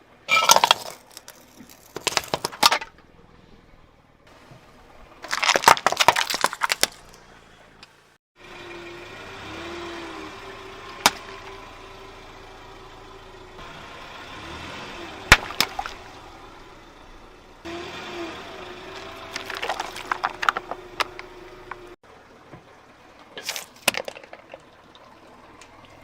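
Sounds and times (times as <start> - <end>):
brittle objects cracking under wheel: 0.3 - 3.1, 5.2 - 7.9, 15.3 - 16.1, 18.9 - 21.9, 23.3 - 26.0
car engine running slowly: 0.9 - 26.0.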